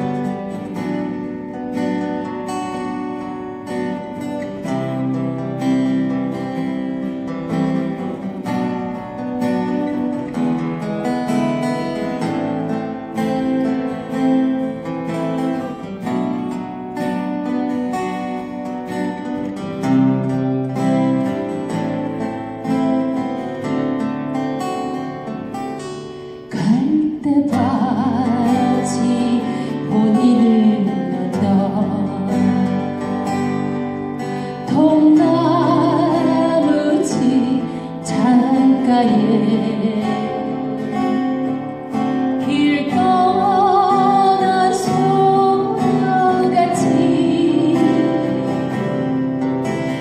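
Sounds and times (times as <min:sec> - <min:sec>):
acoustic guitar: 0:00.0 - 0:50.0
woman singing a ballad: 0:26.5 - 0:41.3, 0:42.0 - 0:49.3.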